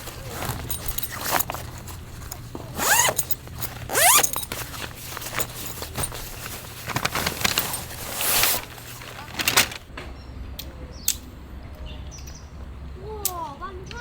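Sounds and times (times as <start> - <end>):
zipper pulled: 0.0 - 9.4.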